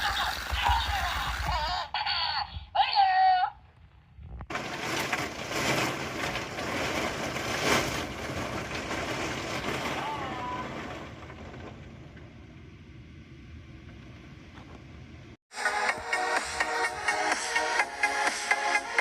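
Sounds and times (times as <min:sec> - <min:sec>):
thunder crash and rumble: 0:04.5 - 0:14.4.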